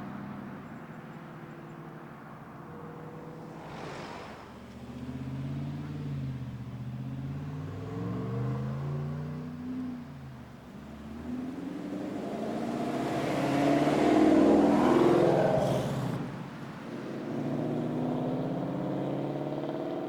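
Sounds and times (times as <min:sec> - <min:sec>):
car engine revving: 0:02.4 - 0:20.0.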